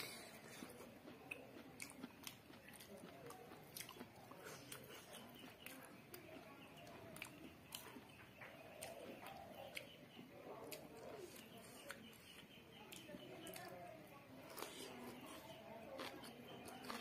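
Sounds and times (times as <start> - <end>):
chewing food: 0.0 - 17.0.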